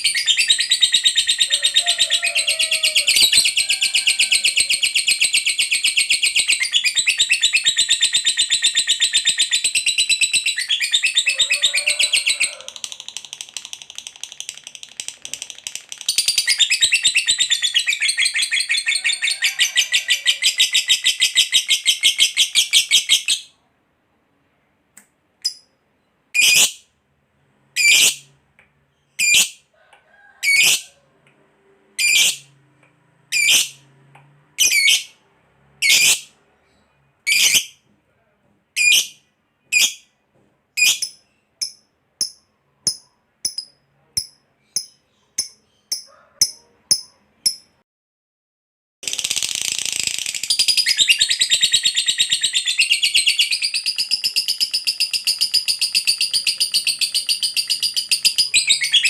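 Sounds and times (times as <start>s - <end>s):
lovebird chattering trill: 40.8s - 47.7s.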